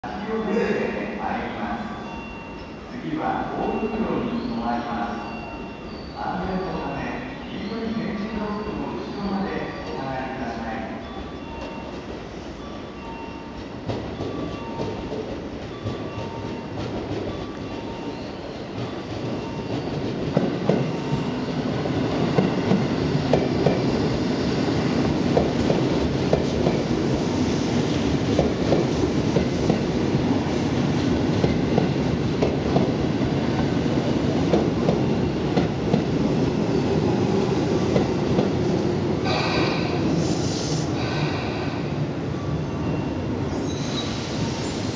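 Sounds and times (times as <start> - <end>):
train running gear rumbling: 11.0 - 40.3.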